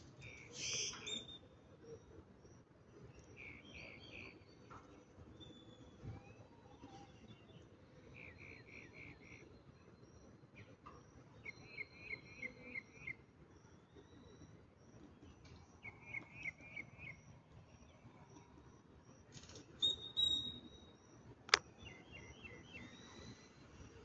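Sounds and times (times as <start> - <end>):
bird chirping: 0.2 - 2.1, 7.1 - 18.8, 19.8 - 23.6.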